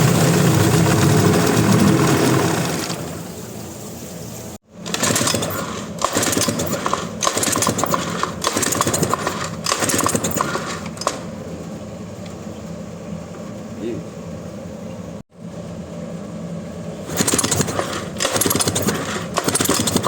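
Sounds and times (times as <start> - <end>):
metallic clicks and clatter: 4.8 - 11.3, 17.1 - 20.0.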